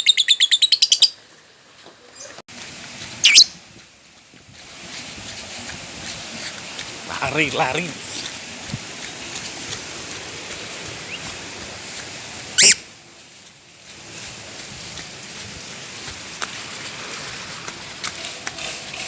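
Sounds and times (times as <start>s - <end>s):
bird shrill chirps: 0.0s - 1.2s, 3.2s - 3.6s, 12.6s - 12.8s
steady background hiss: 0.8s - 19.0s.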